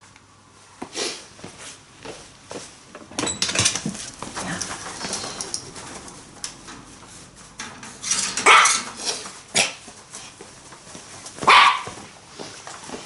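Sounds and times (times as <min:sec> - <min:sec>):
light clicking and clattering: 0:03.3 - 0:07.0
dog barking: 0:08.4 - 0:08.8, 0:11.4 - 0:12.0.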